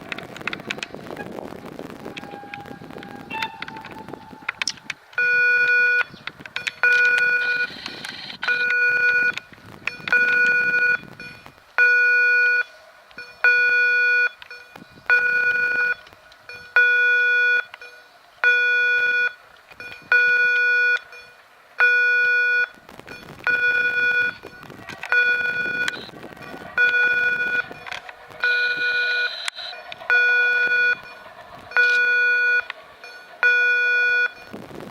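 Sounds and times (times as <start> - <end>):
low rumble: 0.0 - 11.8, 22.6 - 34.9
level crossing warning beeps: 2.2 - 34.6.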